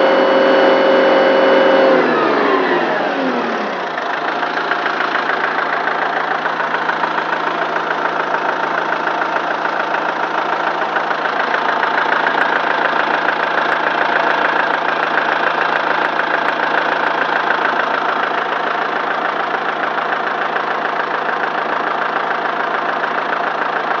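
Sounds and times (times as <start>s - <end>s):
tractor diesel engine idling: 0.0s - 24.0s.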